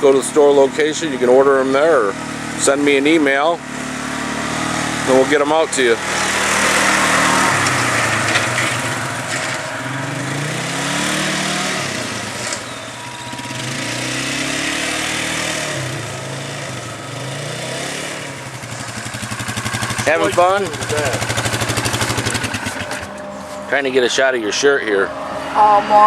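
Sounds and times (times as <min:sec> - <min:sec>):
atv engine revving: 0:00.0 - 0:26.0.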